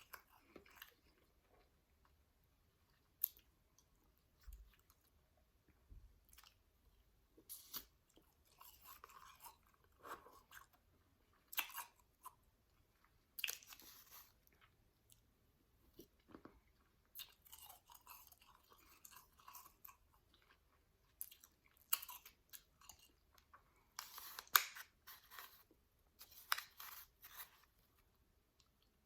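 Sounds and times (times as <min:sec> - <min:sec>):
chewing shaved ice: 0:16.0 - 0:25.6.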